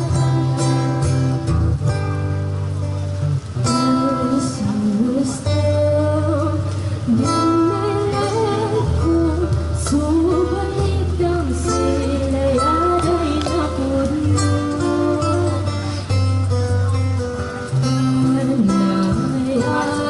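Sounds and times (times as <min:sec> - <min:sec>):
strummed acoustic guitar: 0:00.0 - 0:20.0
person singing: 0:03.7 - 0:15.9, 0:17.9 - 0:20.0.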